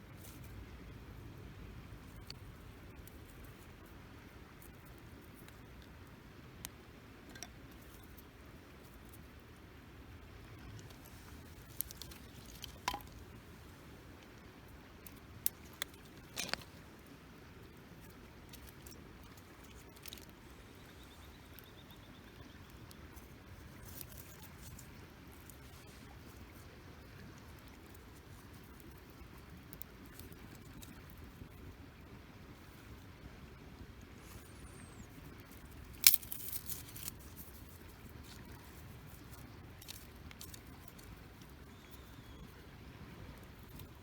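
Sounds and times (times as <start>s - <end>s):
campfire crackling: 1.9s - 44.0s.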